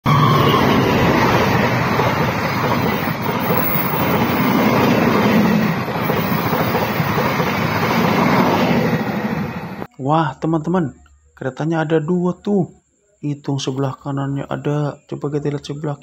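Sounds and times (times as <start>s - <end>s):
passenger train passing at speed: 0.0s - 9.9s
train wheels rushing over rails: 0.1s - 9.9s.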